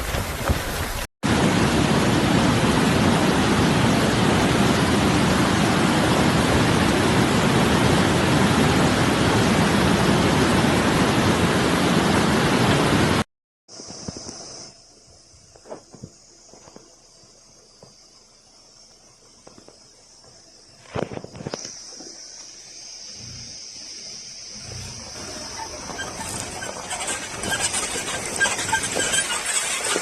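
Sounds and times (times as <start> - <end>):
rushing floodwater and rain: 0.0 - 13.3, 24.1 - 30.0.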